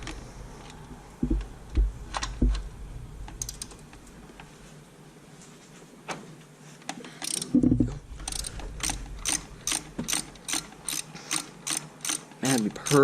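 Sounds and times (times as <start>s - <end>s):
ratchet wrench clicking: 7.2s - 7.6s, 8.2s - 13.0s.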